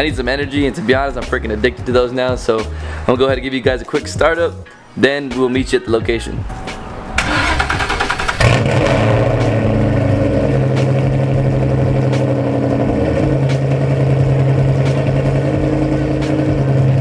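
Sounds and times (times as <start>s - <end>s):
car engine starting and idling: 6.4s - 17.0s.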